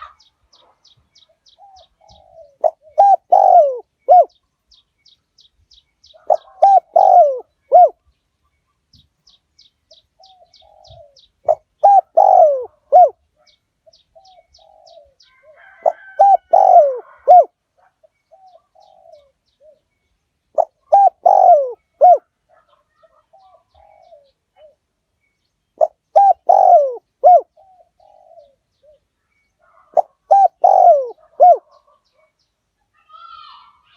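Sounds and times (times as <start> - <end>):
small birds chirping: 0.0 - 33.9
dove cooing: 1.5 - 4.4, 6.0 - 8.0, 10.2 - 19.9, 20.5 - 24.8, 25.8 - 32.3.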